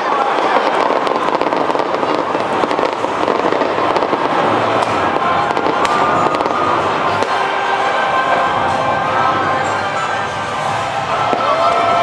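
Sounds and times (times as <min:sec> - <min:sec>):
fireworks popping and crackling: 0:00.0 - 0:08.0, 0:09.8 - 0:12.0
large crowd din: 0:00.0 - 0:12.0.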